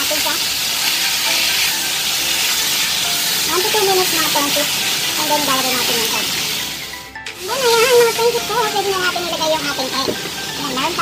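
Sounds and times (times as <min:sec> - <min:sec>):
vegetables sizzling in a wok: 0:00.0 - 0:11.0.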